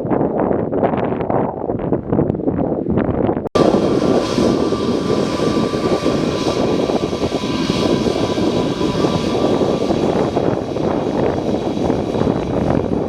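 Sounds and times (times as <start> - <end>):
aircraft engines whining and rumbling: 3.4 - 13.0.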